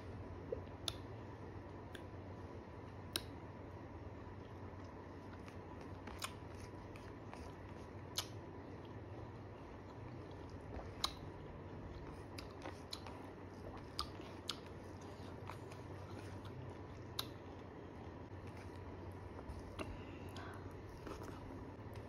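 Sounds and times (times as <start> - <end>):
person chewing and lip-smacking: 0.4 - 1.2, 4.7 - 9.0, 9.7 - 22.0.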